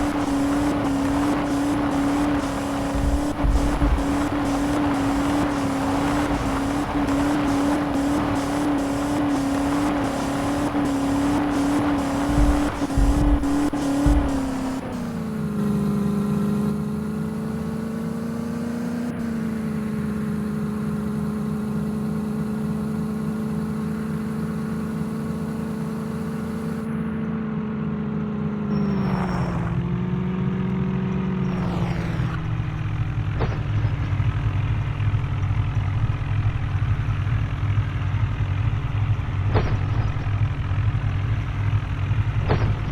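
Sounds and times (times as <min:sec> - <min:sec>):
tractor diesel engine under load: 0:00.0 - 0:42.9
knocks: 0:12.2 - 0:15.1, 0:39.5 - 0:41.0.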